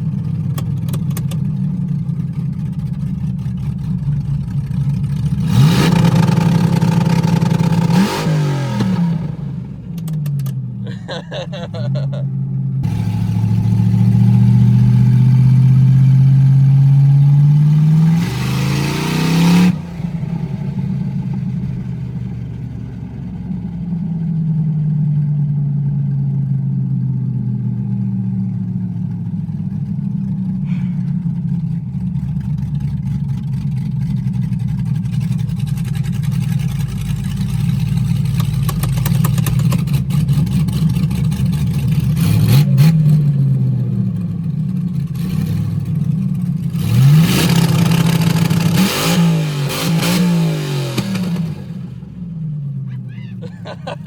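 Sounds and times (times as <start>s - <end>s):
engine revving at high revs: 5.4s - 9.8s, 12.8s - 21.1s, 39.3s - 43.3s, 46.7s - 52.0s.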